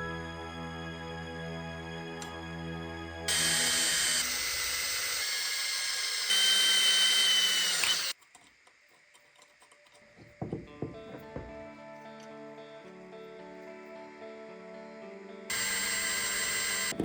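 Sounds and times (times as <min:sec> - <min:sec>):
power tool whining: 0:03.3 - 0:08.2, 0:15.5 - 0:17.0.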